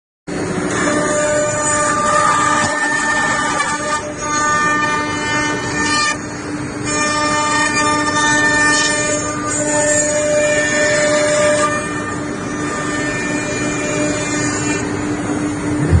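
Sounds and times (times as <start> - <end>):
router spindle whine: 0.3 - 16.0
rushing noise: 15.0 - 16.0.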